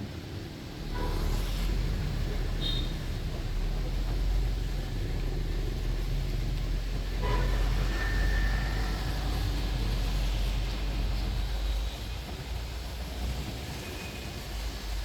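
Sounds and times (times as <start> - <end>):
bus engine and road rumble: 0.0 - 15.0
traffic noise: 0.0 - 15.0.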